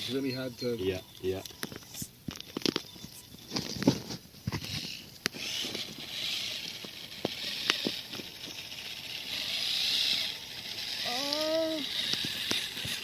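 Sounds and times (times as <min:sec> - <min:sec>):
toy truck motor whirring: 0:04.4 - 0:13.0
tyres and chassis clicking: 0:04.5 - 0:13.0.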